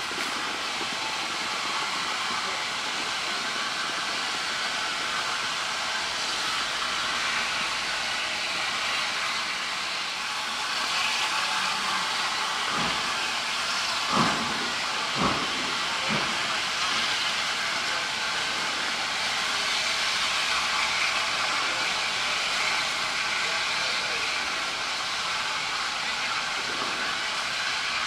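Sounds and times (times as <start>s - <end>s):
steam hissing: 0.0s - 28.0s
steam locomotive chuffs: 0.0s - 28.0s.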